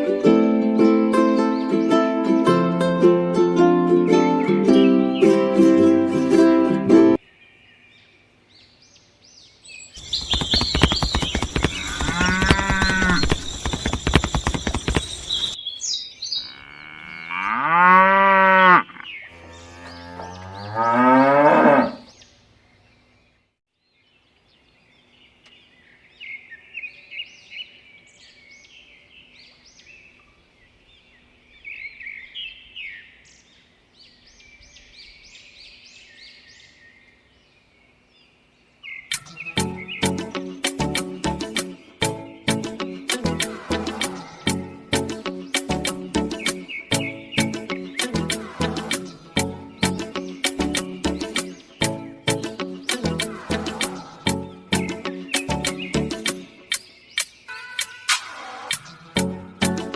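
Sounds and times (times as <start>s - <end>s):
rattling noise: 10.1s - 15.5s
cattle mooing: 11.8s - 13.2s, 16.4s - 22.0s, 43.4s - 44.7s, 48.2s - 49.6s, 53.2s - 54.5s.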